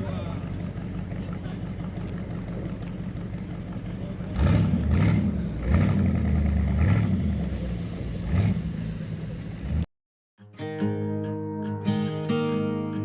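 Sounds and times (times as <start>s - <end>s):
car engine revving: 0.0s - 9.9s.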